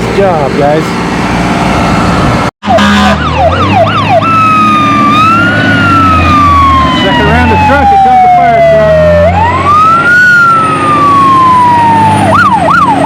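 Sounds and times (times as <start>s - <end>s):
truck engine running: 0.0s - 2.5s
fire truck siren wailing: 0.6s - 13.0s.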